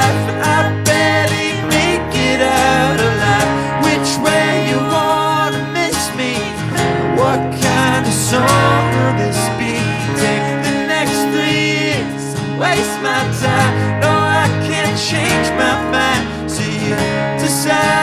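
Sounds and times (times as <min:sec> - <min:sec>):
acoustic guitar: 0:00.0 - 0:18.0
voices singing in harmony: 0:00.0 - 0:18.0.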